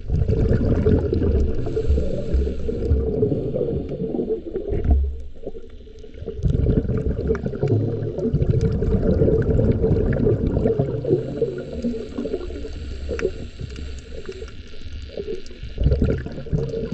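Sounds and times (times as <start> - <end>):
sea water gurgling and sloshing: 0.0 - 16.9
faint clicks: 11.8 - 15.7.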